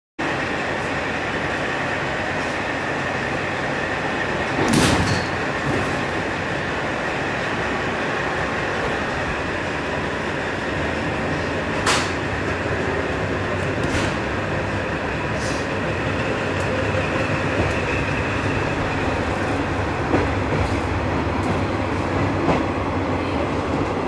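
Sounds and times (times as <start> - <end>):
passenger coach running noise: 0.3 - 24.0.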